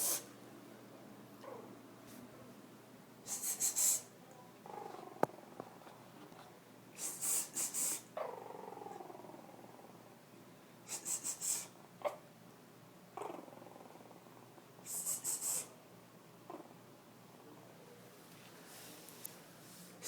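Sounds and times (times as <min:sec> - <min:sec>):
puppies growling: 0:04.6 - 0:06.0, 0:08.2 - 0:10.1, 0:13.2 - 0:14.6, 0:16.5 - 0:16.8.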